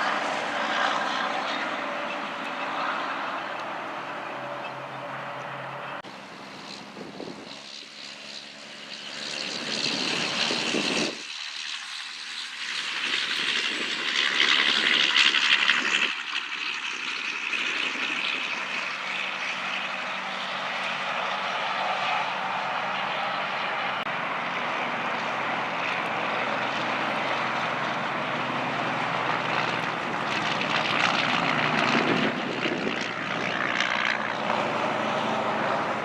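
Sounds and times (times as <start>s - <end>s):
heavy trucks passing: 0.0s - 11.1s, 18.6s - 36.0s.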